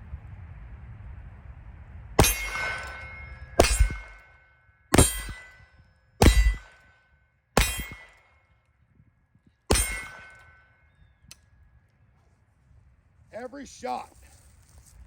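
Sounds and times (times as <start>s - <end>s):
revolver shots with metallic ring: 2.2s - 7.0s, 7.6s - 8.5s, 9.7s - 11.0s.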